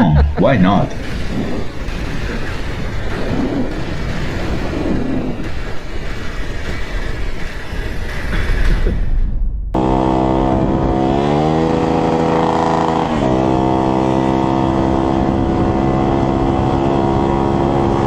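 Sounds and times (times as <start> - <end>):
motorcycle engine running hard: 9.8 - 18.0.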